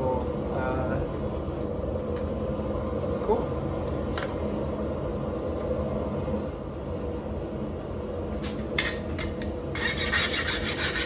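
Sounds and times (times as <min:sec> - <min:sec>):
file rasping on steel: 0:09.7 - 0:11.0.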